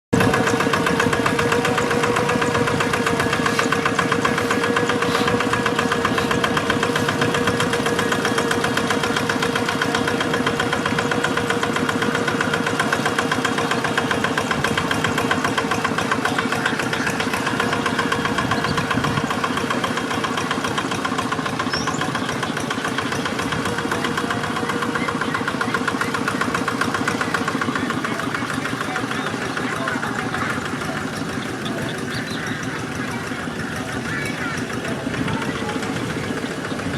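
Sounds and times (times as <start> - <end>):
diesel engine running rapid beat: 0.0 - 36.9.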